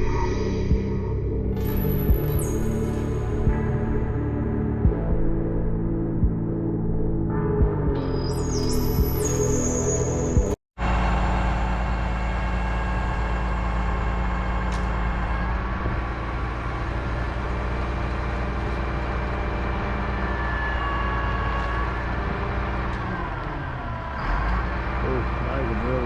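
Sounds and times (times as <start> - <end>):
diesel engine running: 10.8 - 26.0.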